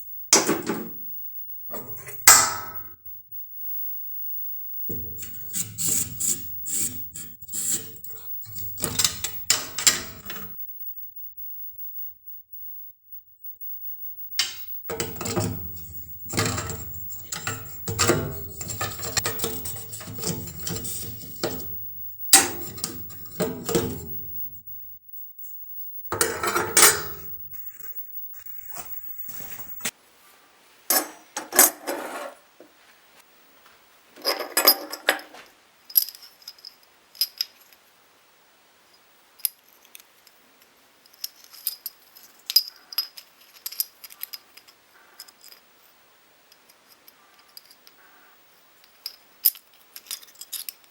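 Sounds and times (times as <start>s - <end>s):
metal parts clinking and rattling: 4.9s - 10.6s, 14.4s - 24.7s, 26.1s - 27.8s, 34.2s - 35.4s, 41.2s - 45.6s, 49.0s - 50.8s.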